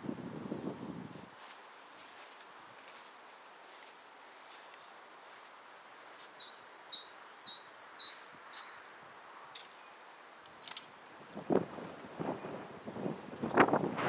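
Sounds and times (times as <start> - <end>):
wind buffeting microphone: 0.0 - 1.4, 11.2 - 14.0
songbird singing short high notes: 6.2 - 8.8.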